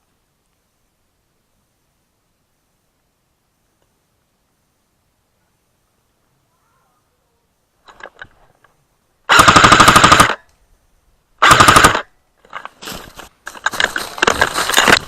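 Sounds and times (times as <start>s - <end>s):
faint scattered noises: 0.0s - 9.3s, 12.0s - 15.0s
airsoft gun full-auto bursts: 9.3s - 10.4s, 11.4s - 12.1s.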